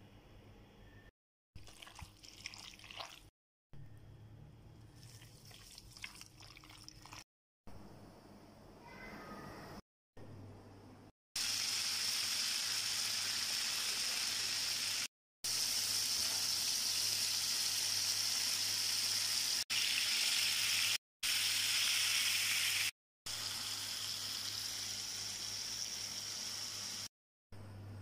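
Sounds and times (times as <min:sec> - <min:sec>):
chicken sizzling in oil: 0:11.4 - 0:27.1.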